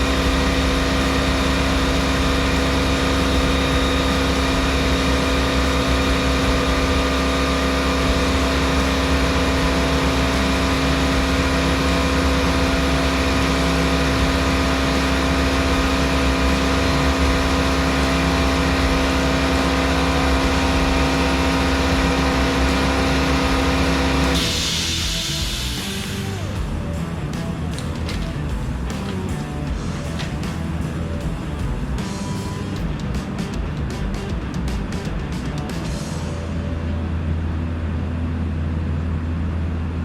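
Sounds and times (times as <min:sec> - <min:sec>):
motor hum: 0:00.0 - 0:40.0.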